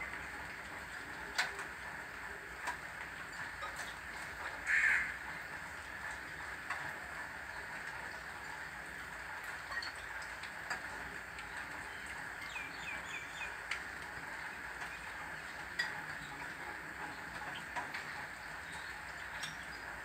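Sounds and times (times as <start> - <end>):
steady rain: 0.0 - 20.0
small bird chirping: 11.9 - 13.6.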